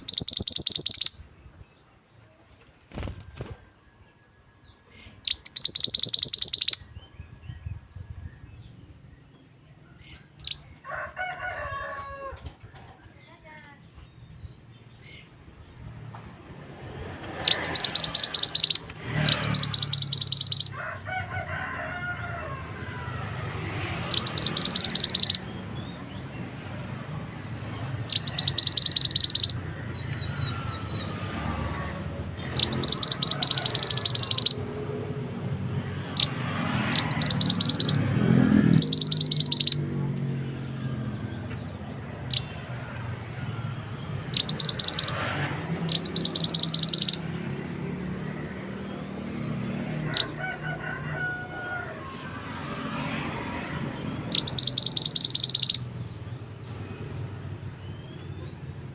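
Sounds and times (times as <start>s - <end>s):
songbird buzzy trills: 0.0s - 1.3s, 5.2s - 6.9s, 17.4s - 20.8s, 24.0s - 25.6s, 28.0s - 31.2s, 32.4s - 34.6s, 36.2s - 39.8s, 44.2s - 45.3s, 45.9s - 47.3s, 54.3s - 56.0s.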